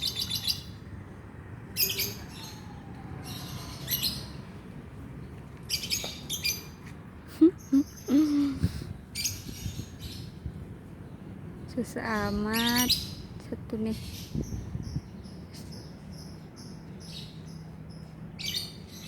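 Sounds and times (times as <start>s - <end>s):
lovebird chirping: 7.4s - 10.3s.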